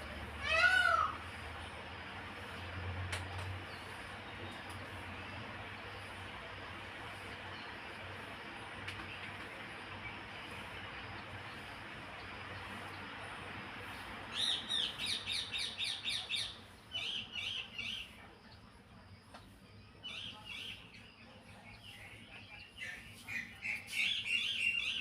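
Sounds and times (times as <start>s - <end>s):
small bird chirping rapidly: 14.3s - 18.2s, 21.8s - 25.0s.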